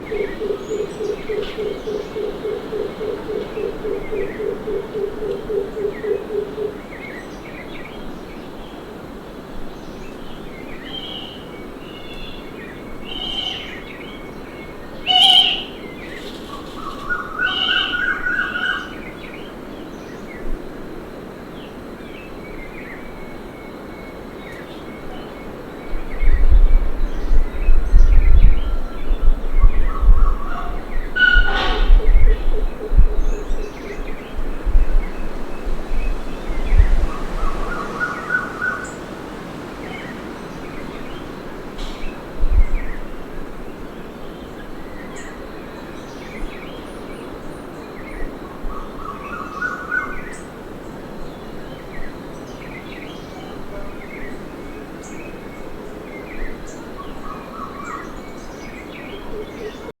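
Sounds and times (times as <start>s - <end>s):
birds chirping and calling: 0.0s - 8.1s, 10.9s - 19.6s, 26.0s - 43.2s
short rising bird call: 15.1s - 15.8s.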